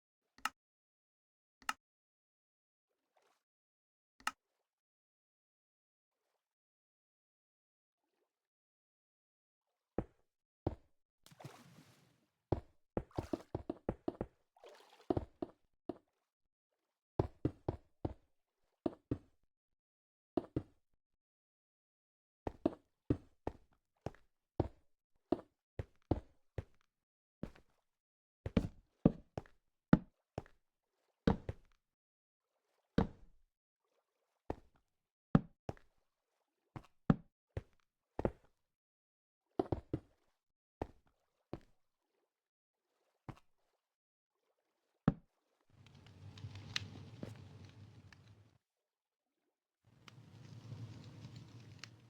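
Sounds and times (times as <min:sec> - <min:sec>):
rustling: 0:50.0 - 0:52.0.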